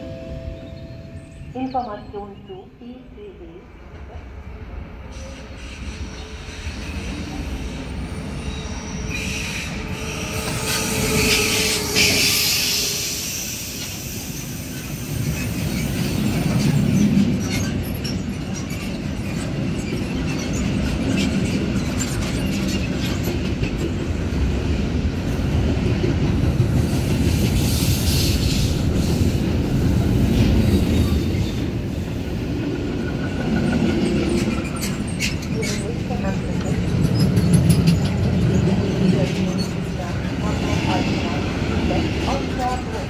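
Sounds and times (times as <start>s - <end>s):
freight train wheels rumbling: 0.0s - 43.0s
train wheels squealing: 5.0s - 23.4s, 33.0s - 40.9s.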